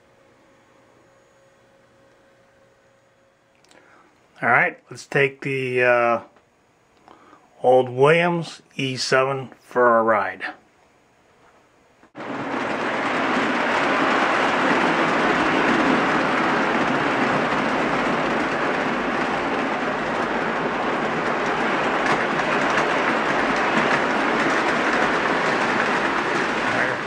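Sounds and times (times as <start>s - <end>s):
model train rumbling on track: 12.1s - 27.0s.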